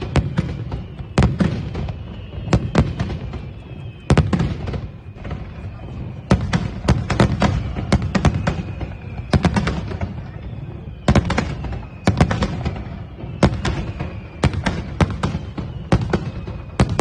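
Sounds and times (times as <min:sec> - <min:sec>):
falling firework whistle: 0:00.0 - 0:17.0
fireworks bangs: 0:00.0 - 0:17.0.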